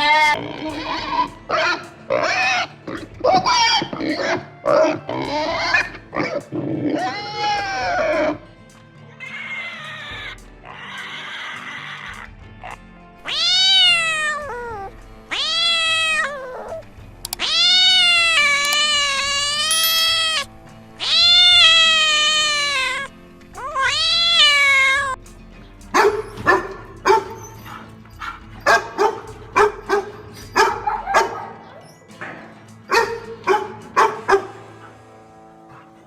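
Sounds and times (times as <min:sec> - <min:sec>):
cat meowing: 0:09.2 - 0:12.3, 0:13.2 - 0:25.2
dog barking: 0:25.9 - 0:36.0.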